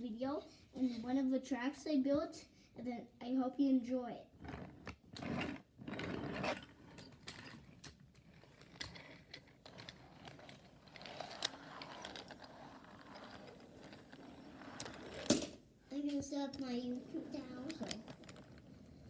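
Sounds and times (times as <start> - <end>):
toy train rolling on wooden track: 4.4 - 19.0
light clicks and rattle: 6.9 - 19.0.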